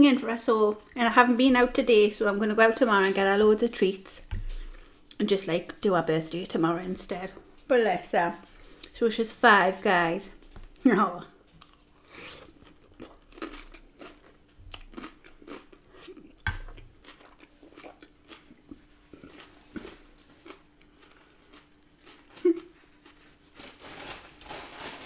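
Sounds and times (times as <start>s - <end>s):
person crunching salad: 11.6s - 25.0s.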